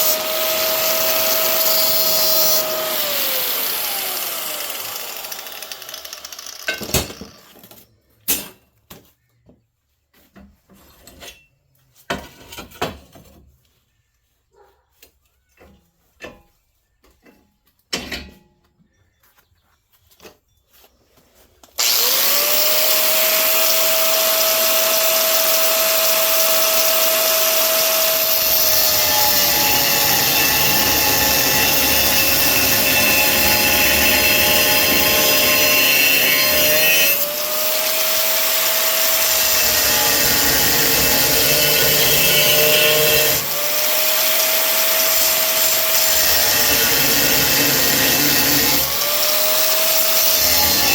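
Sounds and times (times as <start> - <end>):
angle grinder on steel: 0.0 - 7.6, 21.8 - 50.9.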